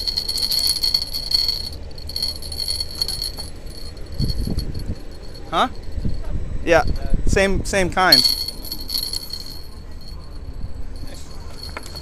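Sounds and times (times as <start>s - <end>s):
high-pitched rattling buzz: 0.0s - 12.0s
wind on microphone: 4.1s - 7.9s.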